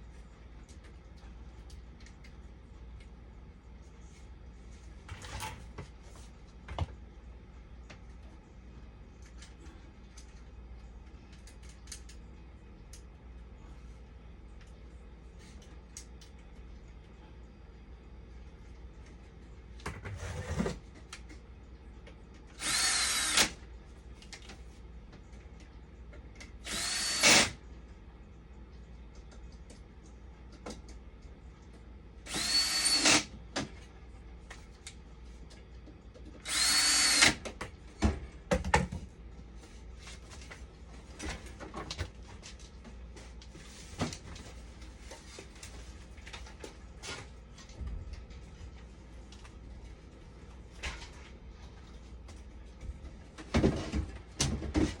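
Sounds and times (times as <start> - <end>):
electric drill motor whine: 22.6 - 23.6, 26.6 - 27.6, 32.3 - 33.3, 36.4 - 37.4.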